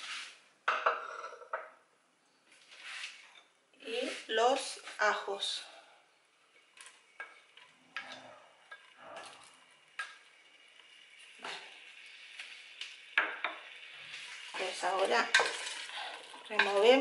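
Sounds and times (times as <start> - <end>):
vegetables sizzling in oil: 8.6 - 17.0
plate and spoon scraping pot: 14.3 - 17.0.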